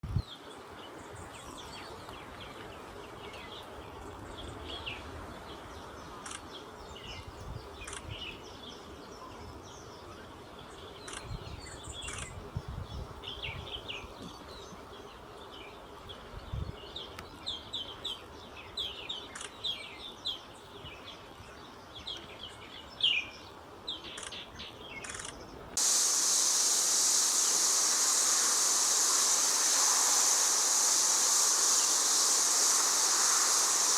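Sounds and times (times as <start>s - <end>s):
small birds chirping: 24.0s - 33.9s
loud steady rushing noise: 25.8s - 33.9s.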